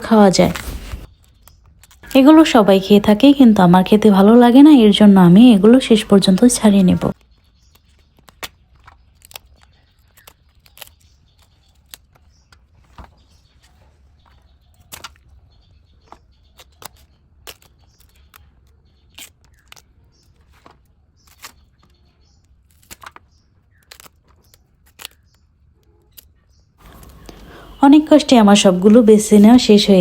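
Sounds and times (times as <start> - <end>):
plant bracts snapping: 7.1 - 12.6, 16.1 - 27.5.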